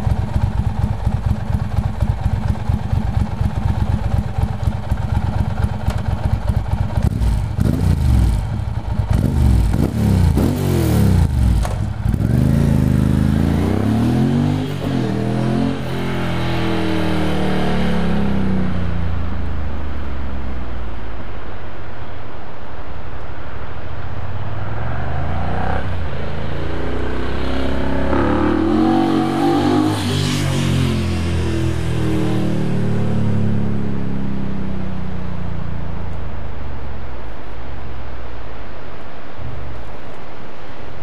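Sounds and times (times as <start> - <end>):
motorcycle pulling away: 0.0 - 19.1, 26.9 - 35.7
motorcycle engine idling and revving: 0.0 - 21.6, 23.5 - 38.5
steady background noise: 0.0 - 41.0.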